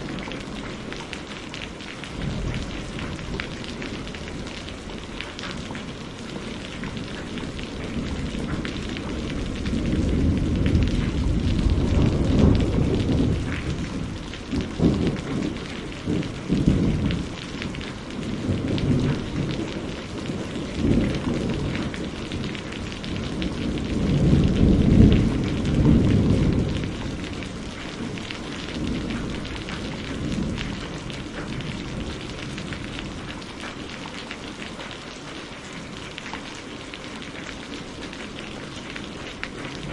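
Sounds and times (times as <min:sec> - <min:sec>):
steady rain falling: 0:00.0 - 0:39.9
low rolls of thunder: 0:02.1 - 0:33.7.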